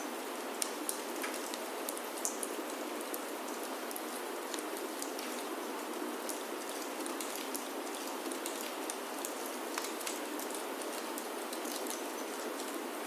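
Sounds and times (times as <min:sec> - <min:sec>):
rain on a wooden roof: 0:00.0 - 0:13.0.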